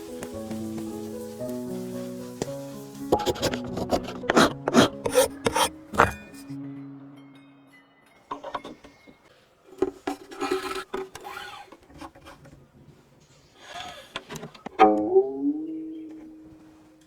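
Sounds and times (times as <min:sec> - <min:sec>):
wood being filed: 0:03.2 - 0:06.4, 0:10.2 - 0:12.4.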